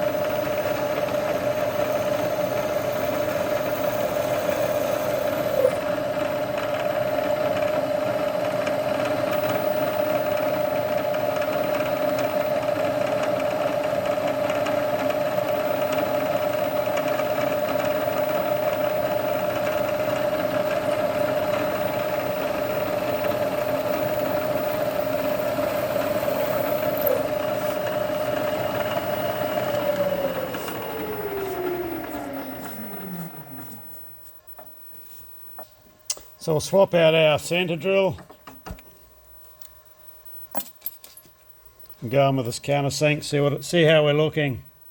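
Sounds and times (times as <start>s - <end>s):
machine tool motor whining: 0.0s - 12.7s, 14.4s - 34.7s.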